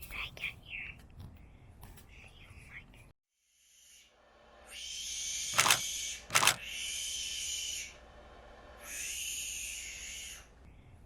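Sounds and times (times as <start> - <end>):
sharp clicks: 5.6 - 6.6.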